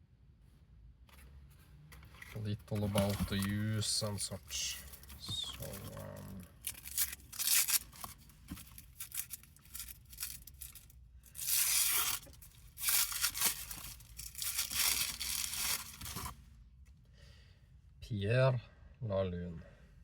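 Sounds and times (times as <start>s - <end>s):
packaging tearing and crinkling: 2.8s - 16.4s.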